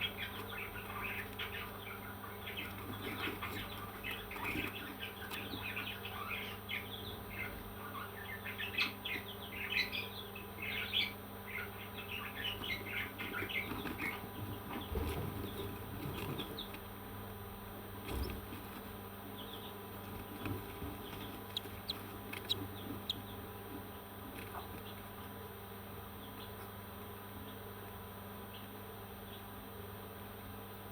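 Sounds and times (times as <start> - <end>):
parrots chirping: 21.1 - 23.3.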